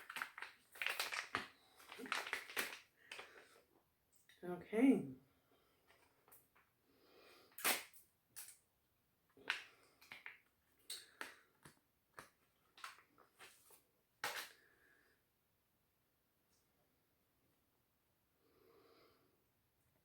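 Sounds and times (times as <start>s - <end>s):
packet crinkling and clicking: 0.0s - 3.5s, 9.4s - 14.6s.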